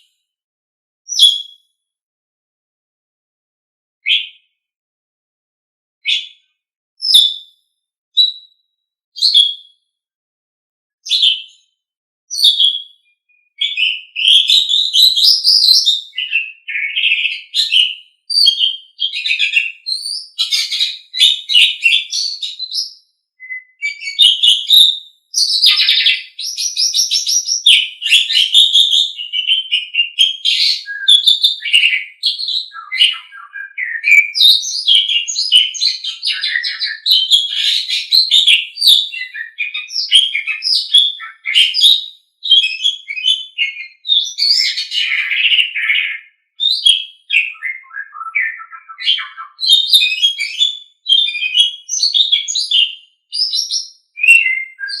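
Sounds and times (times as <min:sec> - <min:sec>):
starling singing: 0:13.6 - 0:55.0.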